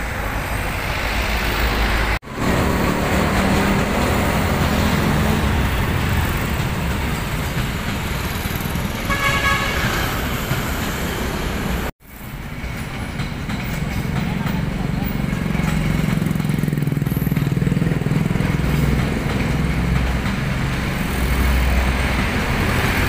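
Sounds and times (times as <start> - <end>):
passenger train rumbling past: 0.0 - 23.0
train horn: 9.0 - 10.2.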